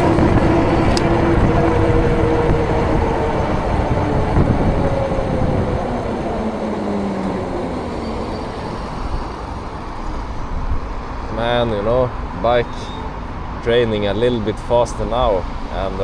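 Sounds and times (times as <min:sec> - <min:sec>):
faint falling whine: 0:00.0 - 0:11.8
wind rushing over microphone: 0:00.0 - 0:12.6.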